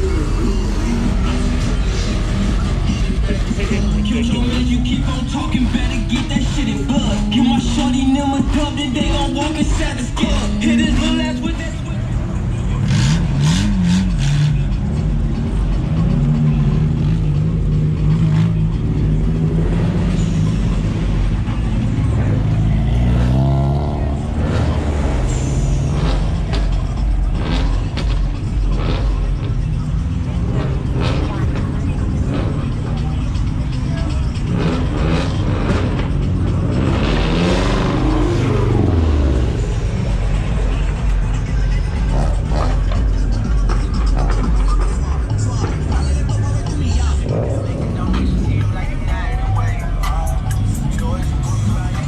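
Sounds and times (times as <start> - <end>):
car engine idling: 0.0 - 52.0
car engine revving past: 22.0 - 29.4, 34.4 - 44.7.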